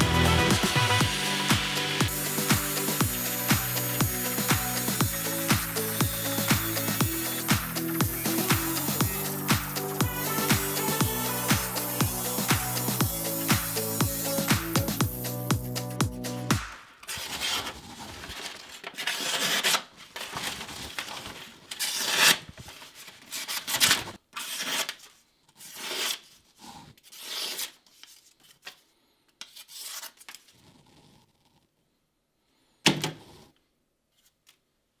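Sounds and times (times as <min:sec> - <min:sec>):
knife rasping across cardboard: 0:25.6 - 0:27.8.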